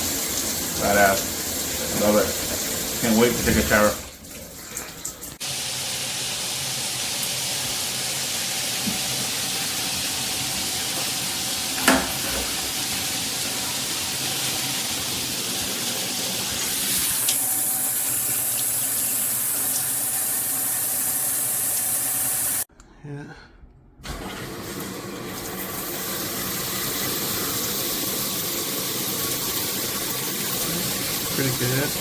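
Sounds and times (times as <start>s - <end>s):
shower water spraying: 0.0s - 22.7s, 24.1s - 32.0s.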